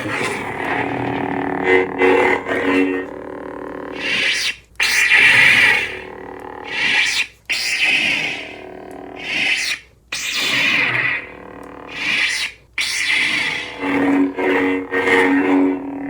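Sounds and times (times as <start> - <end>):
lightsaber swing sounds: 0.0 - 3.0, 3.9 - 6.0
lightsaber electric hum: 0.0 - 16.0.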